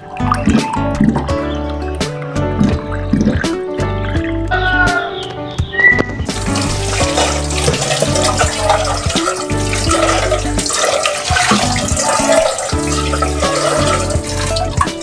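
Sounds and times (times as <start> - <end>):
background music: 0.0 - 15.0
tap water running into sink: 6.3 - 15.0.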